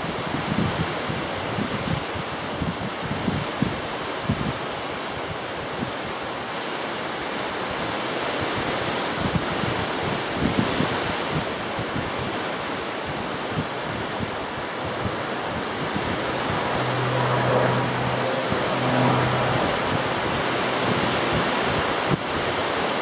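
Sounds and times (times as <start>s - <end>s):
wind buffeting microphone: 0.0s - 6.4s, 7.7s - 23.0s
gusty wind rushing: 10.2s - 23.0s.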